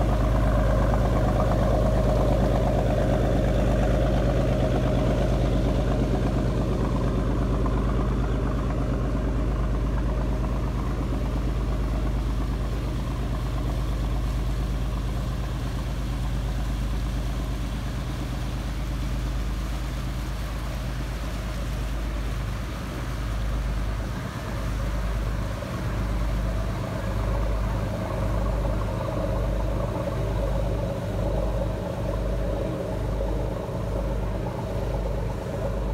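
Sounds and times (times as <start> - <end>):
diesel engines droning: 0.0 - 35.9.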